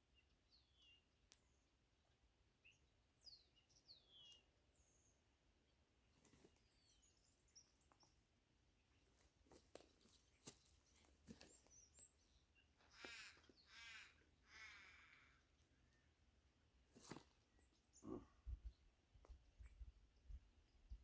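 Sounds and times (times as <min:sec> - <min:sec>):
small birds chirping faintly: 0:00.0 - 0:21.0
crow cawing: 0:12.8 - 0:15.4.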